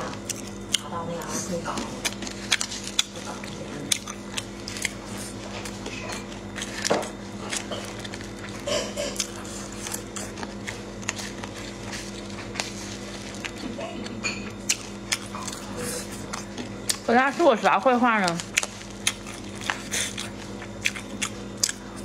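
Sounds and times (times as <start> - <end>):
crunchy chewing: 0.0 - 17.1, 18.2 - 22.0.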